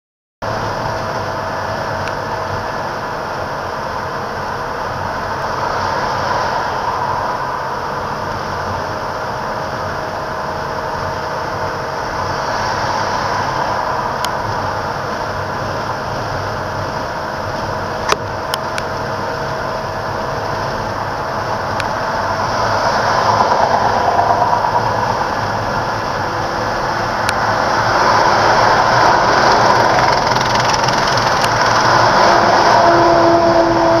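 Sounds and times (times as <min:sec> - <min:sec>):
truck road noise: 0:00.4 - 0:34.0
sharp click: 0:30.0 - 0:32.0.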